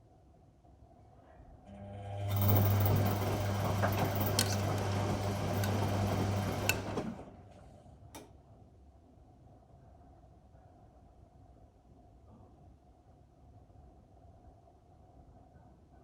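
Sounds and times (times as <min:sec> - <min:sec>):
washing machine running: 0:01.7 - 0:07.5.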